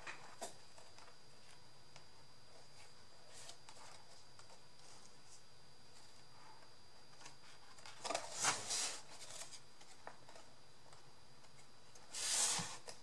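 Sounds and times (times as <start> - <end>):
paper rustling: 7.1 - 10.5.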